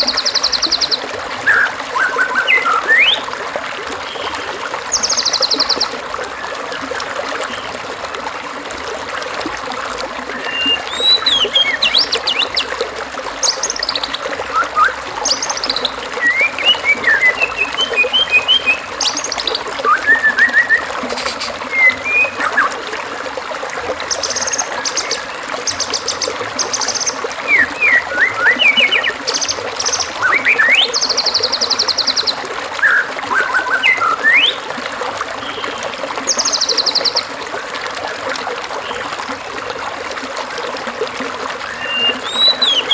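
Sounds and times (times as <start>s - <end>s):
trickle of running water: 0.0s - 42.9s
songbirds chirping and trilling: 41.8s - 42.9s.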